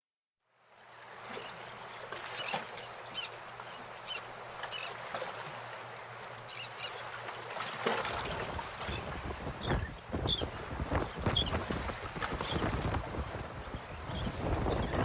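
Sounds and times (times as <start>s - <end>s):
birds calling: 8.4s - 15.0s.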